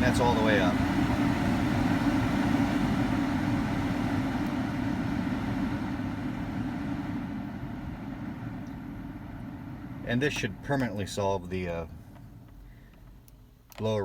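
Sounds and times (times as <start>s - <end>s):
blower fan whooshing hum: 0.0s - 14.0s.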